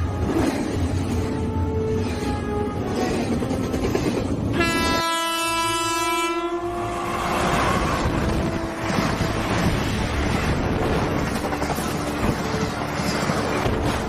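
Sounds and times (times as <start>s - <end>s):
train passing rumble: 0.0s - 14.0s
wind buffeting microphone: 7.3s - 14.0s.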